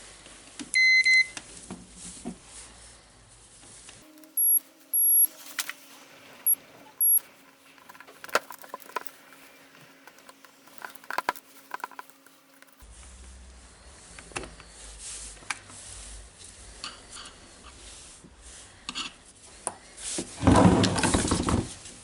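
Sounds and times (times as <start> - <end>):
high-pitched beeps: 4.1 - 5.6, 6.4 - 7.3
small hard parts clicking: 6.4 - 12.8.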